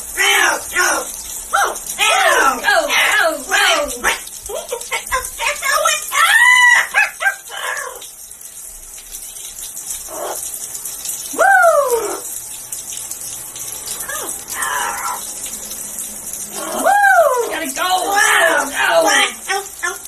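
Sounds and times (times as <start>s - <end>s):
parrot calling: 0.2s - 8.1s, 10.1s - 10.4s, 14.0s - 15.3s, 16.5s - 20.0s
parrot squawk: 1.5s - 8.1s, 10.1s - 10.4s, 14.0s - 15.3s, 18.2s - 20.0s.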